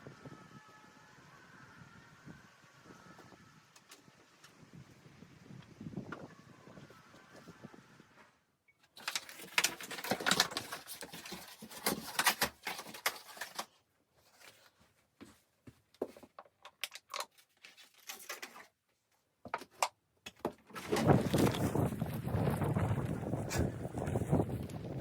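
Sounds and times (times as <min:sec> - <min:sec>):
wind noise on microphone: 0:00.0 - 0:08.4, 0:20.8 - 0:25.0
rapid irregular clicking and crackling: 0:08.9 - 0:13.8, 0:16.0 - 0:18.8.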